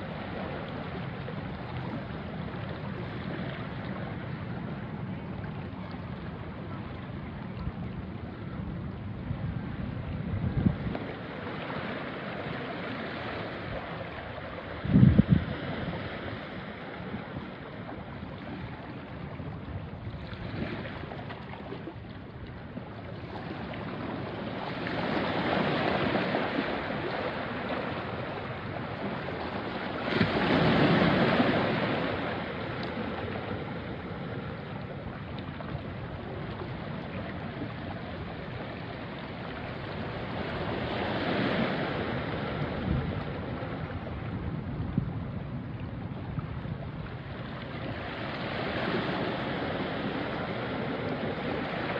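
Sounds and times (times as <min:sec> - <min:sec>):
waves washing onto rocky shore: 0:10.7 - 0:44.8, 0:47.2 - 0:51.9.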